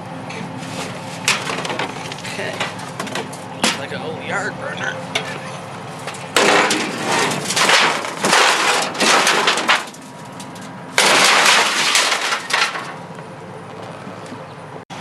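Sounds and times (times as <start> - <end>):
junk clattering and scraping: 0.3 - 14.5.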